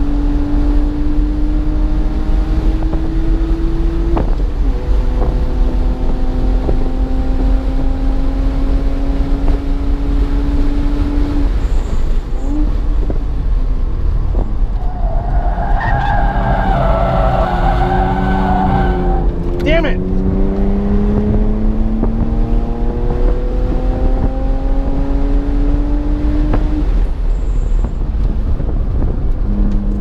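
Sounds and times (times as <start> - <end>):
car engine revving: 0.0 - 30.0
tires squealing: 14.4 - 20.0.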